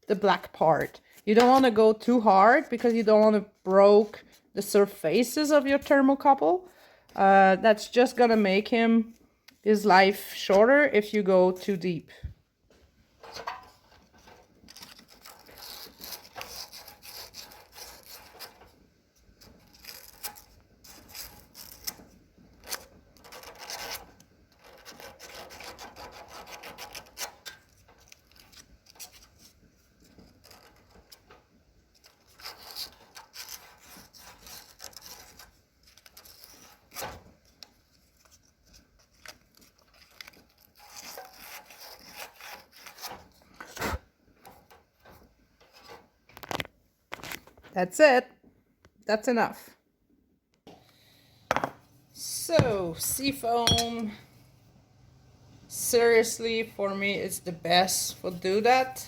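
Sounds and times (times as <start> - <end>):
sandpaper scratching metal: 15.2 - 18.5.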